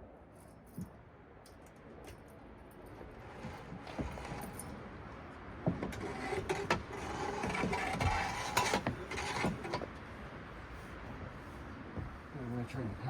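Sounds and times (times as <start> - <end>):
steady mechanical noise: 2.9 - 5.0, 5.6 - 10.0.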